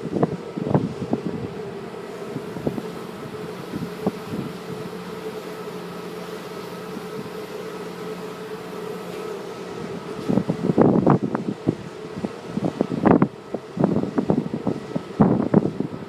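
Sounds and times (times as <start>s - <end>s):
ship engines droning: 0.0s - 16.0s.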